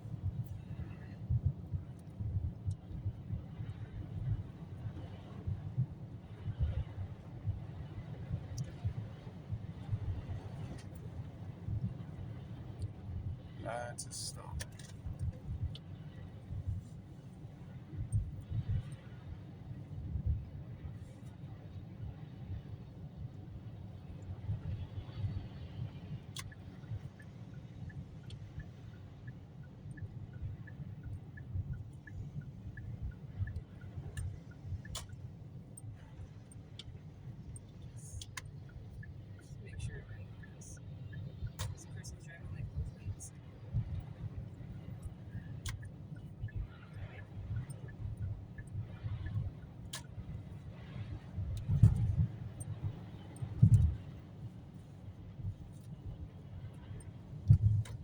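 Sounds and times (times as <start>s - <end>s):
car road rumble inside cabin: 0.0s - 58.0s.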